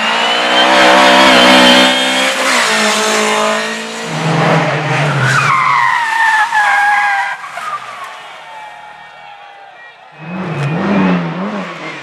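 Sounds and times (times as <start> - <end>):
tyres skidding and squealing: 0.0 - 12.0
race car engine running: 10.1 - 12.0.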